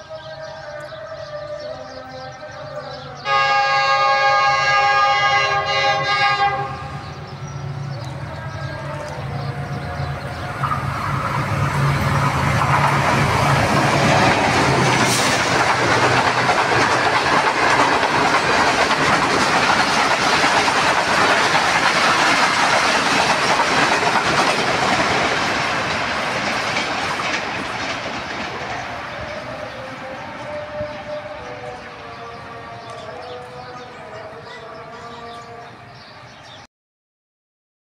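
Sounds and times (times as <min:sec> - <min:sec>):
diesel locomotive engine drone: 0:00.0 - 0:36.6
train wheels clattering on rails: 0:07.1 - 0:30.6.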